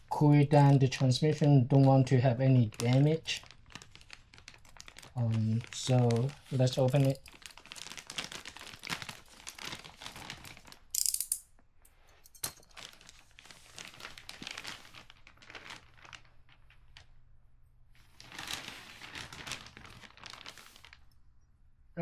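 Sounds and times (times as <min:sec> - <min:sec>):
packaging crinkling: 0:02.5 - 0:11.4, 0:12.6 - 0:17.3, 0:18.0 - 0:21.2
packaging tearing: 0:02.7 - 0:11.3, 0:12.7 - 0:16.8, 0:18.2 - 0:21.0.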